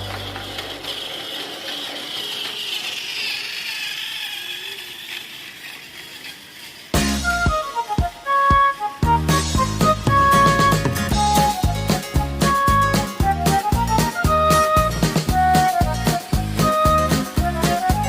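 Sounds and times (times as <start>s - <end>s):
toy train motor whirring: 0.0s - 18.0s
music: 7.0s - 18.0s.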